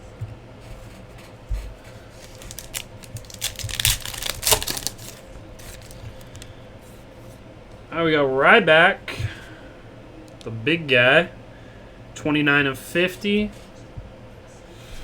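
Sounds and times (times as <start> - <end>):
trading cards clicking and rustling: 2.1 - 6.5.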